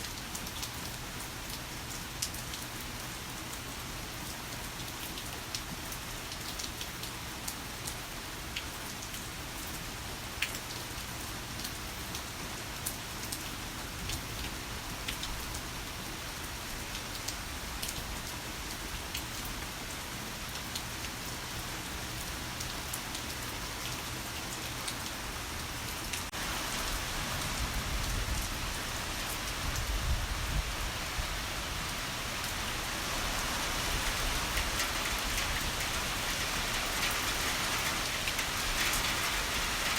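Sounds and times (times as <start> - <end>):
heavy rain falling: 11.4 - 39.9.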